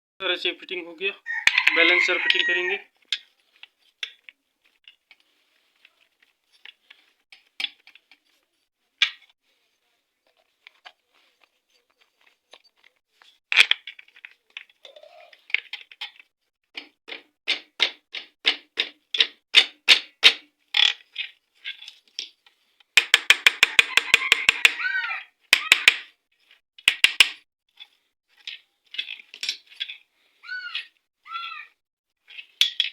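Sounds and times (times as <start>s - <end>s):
metal tools clicking and knocking: 27.8s - 30.0s.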